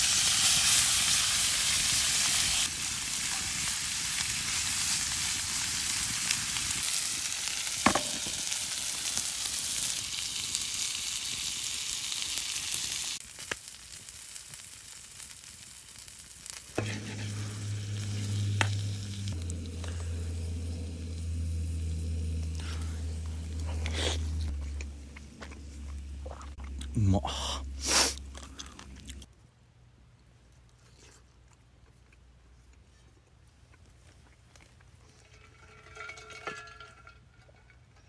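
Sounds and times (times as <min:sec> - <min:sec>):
food sizzling in a frying pan: 0:00.0 - 0:23.6
low steady hum: 0:16.8 - 0:29.4.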